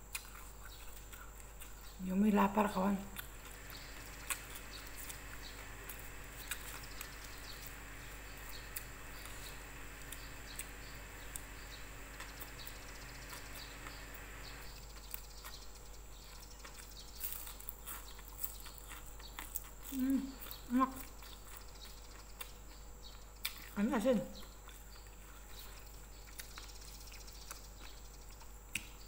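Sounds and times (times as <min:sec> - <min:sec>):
steady background hum: 0:00.0 - 0:29.0
soft chewing and wet mouth clicks: 0:00.1 - 0:02.0, 0:03.1 - 0:05.2, 0:14.8 - 0:23.8, 0:24.4 - 0:29.0.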